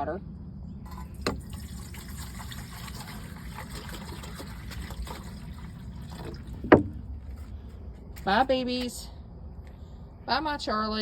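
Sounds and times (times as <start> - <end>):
water pouring into a dish: 0.9 - 6.6.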